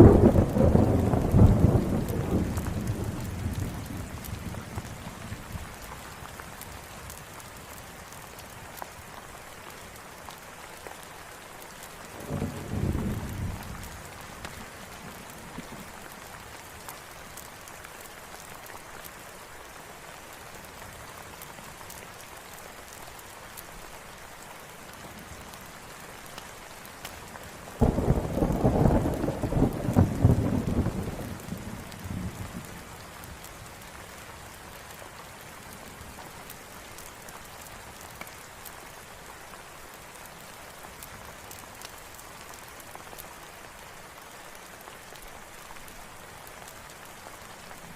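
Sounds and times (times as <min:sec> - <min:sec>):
thunder rumbling: 0:00.0 - 0:05.3, 0:12.2 - 0:14.1, 0:27.8 - 0:32.8
steady rain falling: 0:00.0 - 0:47.9.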